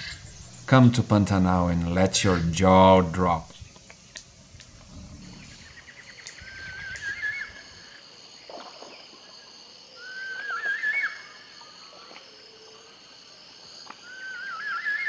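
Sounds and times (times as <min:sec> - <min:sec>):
steady high background tone: 0:00.0 - 0:03.7.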